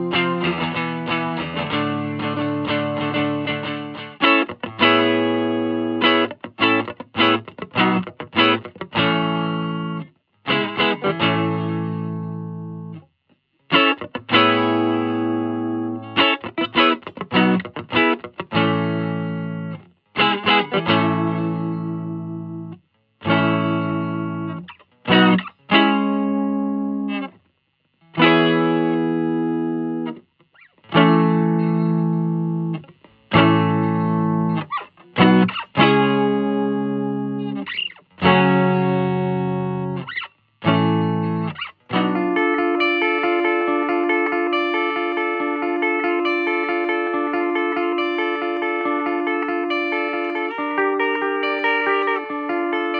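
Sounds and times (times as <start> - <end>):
electric guitar chords: 0.0 - 27.4, 28.0 - 52.9.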